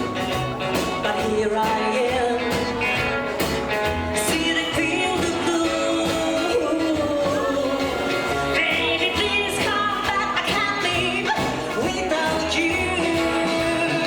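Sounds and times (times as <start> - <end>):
rockabilly band playing live: 0.0 - 14.0
wavering sung vocal: 4.2 - 14.0.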